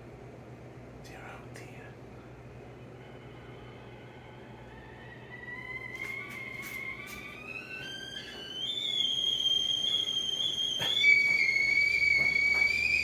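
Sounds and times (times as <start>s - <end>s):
kettle whistling: 2.8s - 13.0s.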